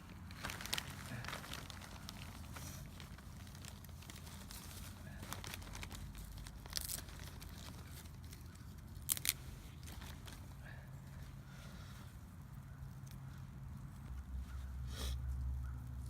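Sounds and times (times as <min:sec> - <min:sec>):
dry bark crackling and tearing: 0:00.0 - 0:10.7.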